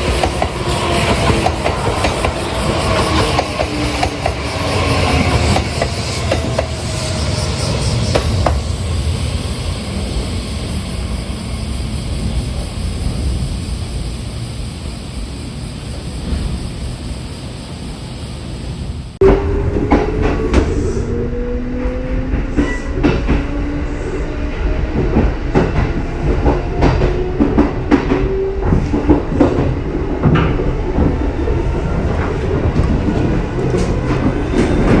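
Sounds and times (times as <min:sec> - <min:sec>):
train wheels clacking over rail joints: 0:00.0 - 0:07.0, 0:25.0 - 0:35.0
train motor whine: 0:00.0 - 0:35.0
train rumble: 0:00.0 - 0:35.0.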